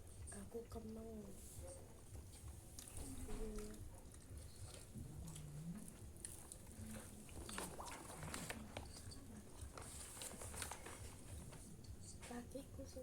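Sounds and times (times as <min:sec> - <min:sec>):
person chewing food: 0:02.3 - 0:11.6.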